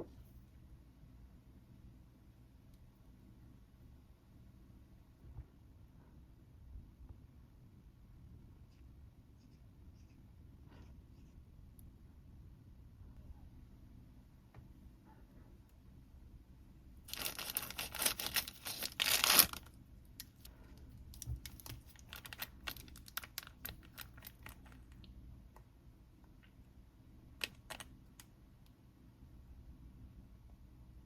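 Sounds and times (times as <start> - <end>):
plastic packaging tearing: 17.1 - 20.5, 21.2 - 24.8
wrapping crinkling: 17.1 - 25.1.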